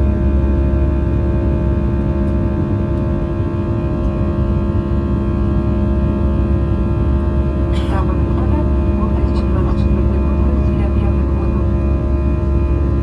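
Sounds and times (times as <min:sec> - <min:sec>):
aircraft cabin engine rumble: 0:00.0 - 0:13.0
steady tonal hum: 0:03.3 - 0:13.0.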